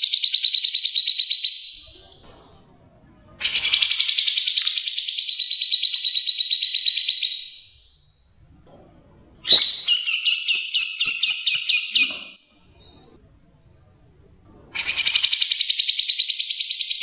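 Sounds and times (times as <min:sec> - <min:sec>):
bird singing high trills: 0:03.4 - 0:08.1, 0:09.5 - 0:13.0.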